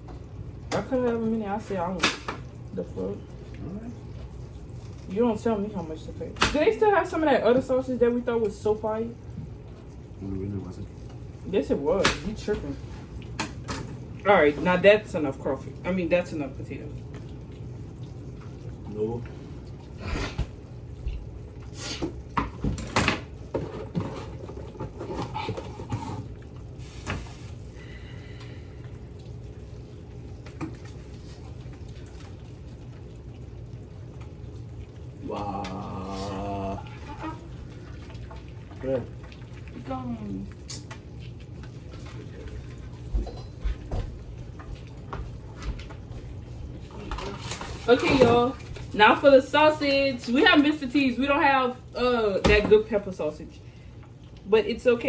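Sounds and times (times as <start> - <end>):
pots and dishes clinking: 43.1 - 43.8.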